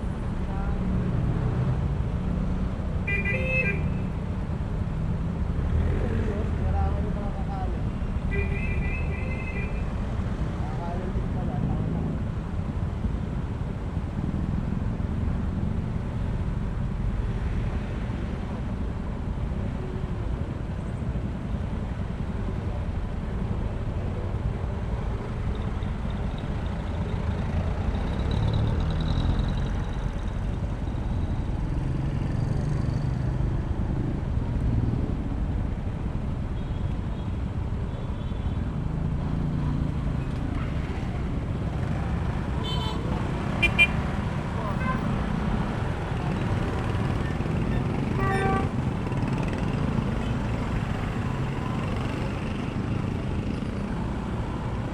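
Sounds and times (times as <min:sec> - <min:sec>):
road and traffic noise: 0:00.0 - 0:54.9.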